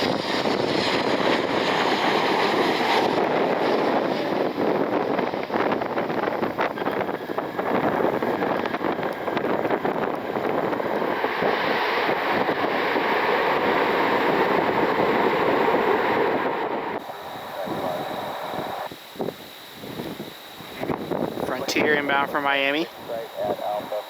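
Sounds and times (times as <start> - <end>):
jet engines passing: 0.0 - 24.0
wind buffeting microphone: 0.0 - 24.0.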